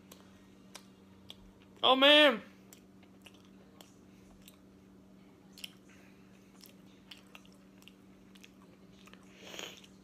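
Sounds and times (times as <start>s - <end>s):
chewing with wet mouth clicks: 0.0s - 1.8s, 2.6s - 4.7s, 5.4s - 10.0s
low steady hum: 0.0s - 10.0s.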